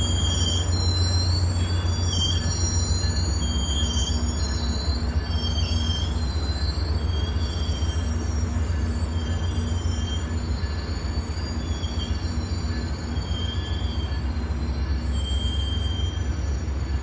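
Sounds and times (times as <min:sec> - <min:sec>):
train rumbling past: 0:00.0 - 0:17.0
train wheels squealing: 0:00.0 - 0:17.0.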